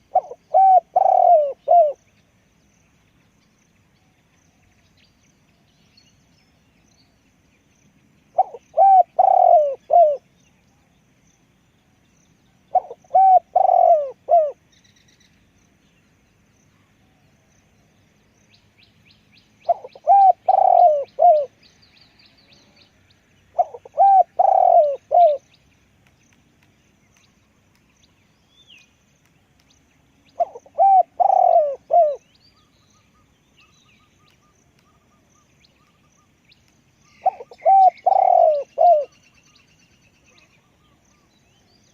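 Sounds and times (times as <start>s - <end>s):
dove cooing: 0.0s - 2.0s, 8.4s - 10.2s, 12.7s - 14.6s, 19.7s - 21.5s, 23.5s - 25.4s, 30.4s - 32.3s, 37.2s - 39.1s
small birds chirping: 0.0s - 41.9s.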